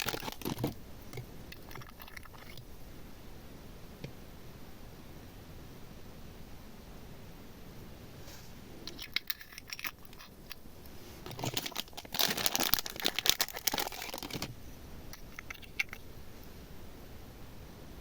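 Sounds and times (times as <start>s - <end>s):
crinkling and crackling material: 0.0s - 2.7s, 8.2s - 16.6s.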